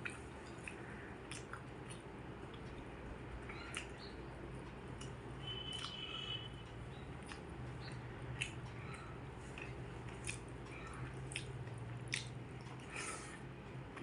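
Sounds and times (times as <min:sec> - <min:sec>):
wet chewing and biting: 0:00.0 - 0:02.8, 0:09.4 - 0:13.2
low steady hum: 0:00.0 - 0:14.0.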